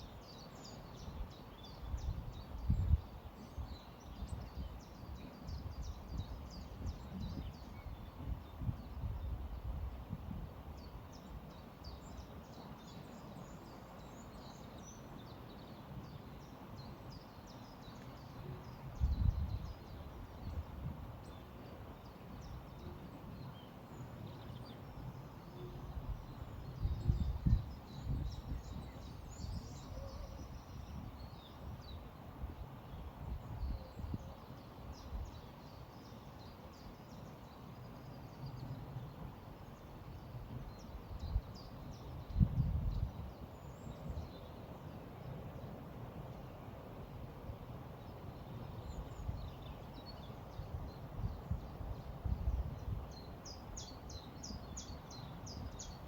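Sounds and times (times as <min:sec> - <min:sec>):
wind rumble on microphone: 0:00.0 - 0:36.1, 0:36.7 - 0:56.0
small birds chirping and singing: 0:10.8 - 0:32.0.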